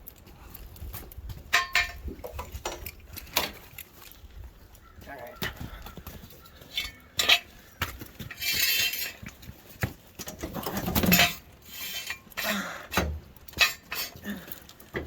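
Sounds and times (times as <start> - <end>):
metal jack stands clanking: 1.5 - 3.9, 6.7 - 7.6, 8.2 - 9.4, 10.4 - 14.2
metal scraping: 6.6 - 9.5, 10.4 - 14.2.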